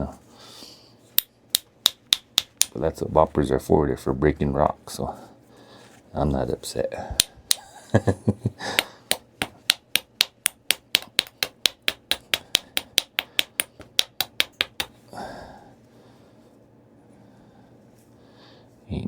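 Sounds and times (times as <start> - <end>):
light sharp tapping clicks on stone: 1.2 - 2.8, 8.8 - 15.0.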